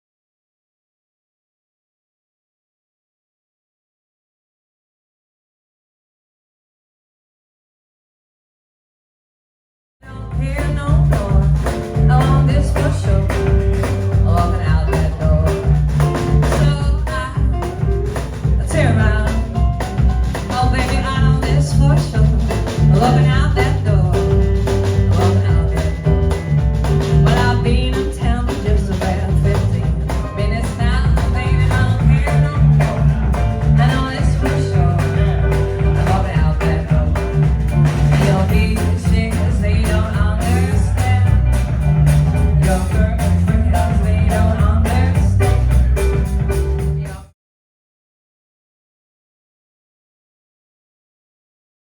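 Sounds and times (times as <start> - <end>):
song with singing and strong bass: 10.1 - 47.3.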